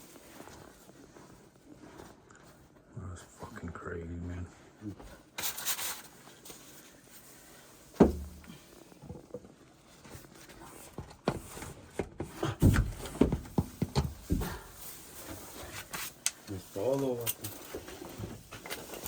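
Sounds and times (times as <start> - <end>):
thumps and knocks: 8.0 - 8.5, 11.0 - 14.6.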